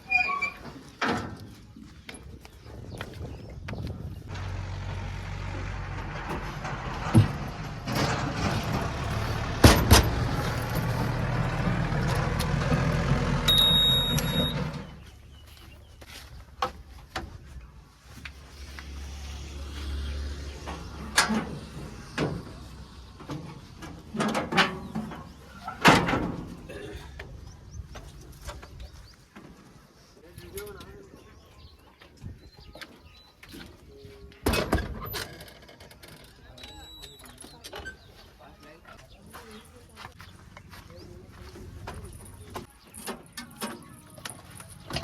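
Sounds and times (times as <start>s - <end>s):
large vehicle engine running: 3.7s - 15.8s, 18.1s - 25.6s, 39.4s - 45.0s.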